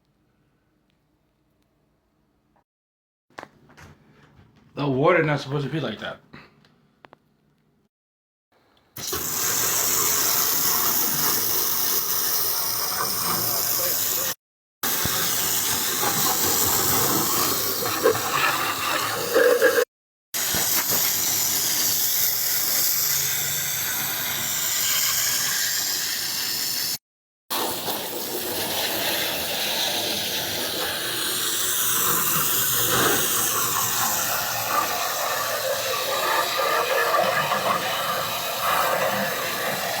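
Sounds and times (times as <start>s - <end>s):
water spraying with a hiss: 9.0s - 40.0s.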